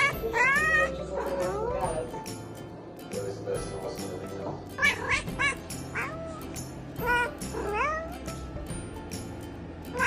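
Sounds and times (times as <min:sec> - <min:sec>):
cat meowing: 0:00.0 - 0:01.9, 0:04.8 - 0:08.2
background music: 0:00.0 - 0:10.0.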